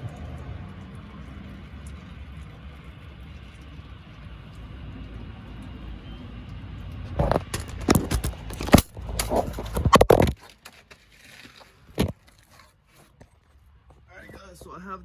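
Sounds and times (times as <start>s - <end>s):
loud knocks and scrapes: 7.1s - 13.2s.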